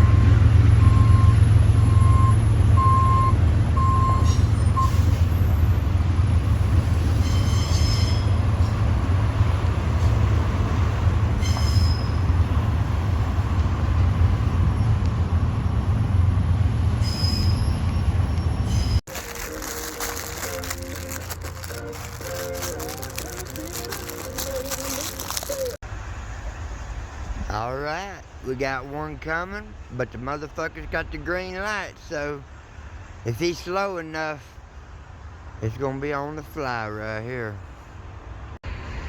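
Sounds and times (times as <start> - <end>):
freight train rumbling: 0.0 - 31.6
train wheels squealing on rails: 4.0 - 5.8, 7.0 - 8.8, 11.3 - 12.5, 17.0 - 19.0.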